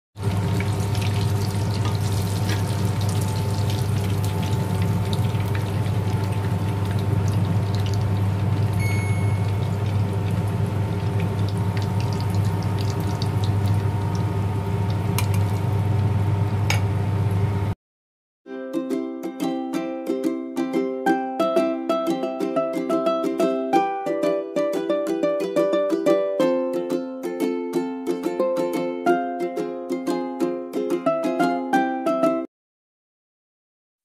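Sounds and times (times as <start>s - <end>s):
fish sizzling in hot oil: 0.2s - 16.2s
low hum: 0.2s - 17.8s
brief high tone: 8.8s - 9.8s.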